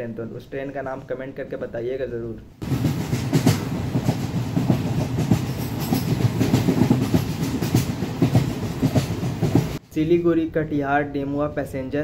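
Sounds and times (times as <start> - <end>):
train rumbling past: 2.6 - 9.8.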